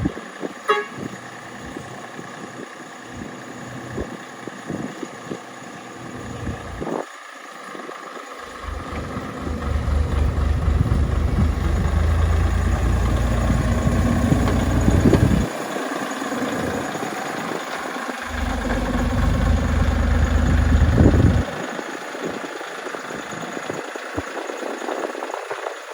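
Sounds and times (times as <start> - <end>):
locomotive engine rumbling: 5.9 - 6.9, 8.4 - 21.7.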